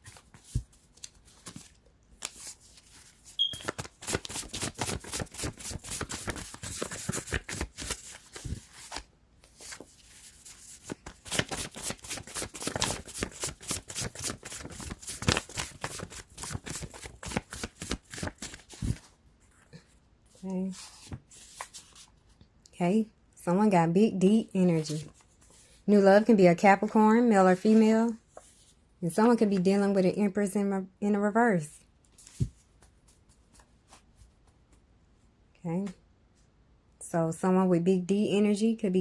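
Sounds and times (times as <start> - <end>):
cards being shuffled: 0.0 - 19.1.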